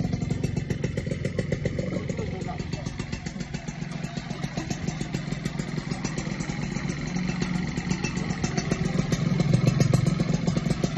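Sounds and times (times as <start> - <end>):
small motorcycle engine idling: 0.0 - 10.9.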